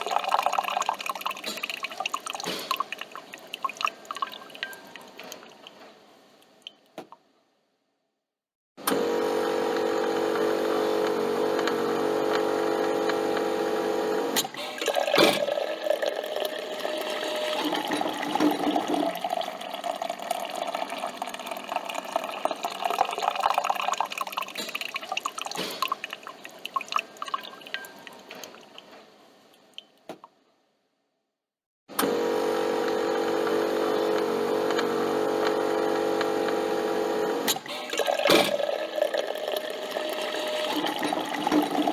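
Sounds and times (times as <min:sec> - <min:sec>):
liquid pouring: 0:00.0 - 0:05.7, 0:14.4 - 0:28.9, 0:37.7 - 0:41.9
coffee machine motor hum: 0:08.8 - 0:14.4, 0:15.2 - 0:19.4, 0:31.9 - 0:41.9.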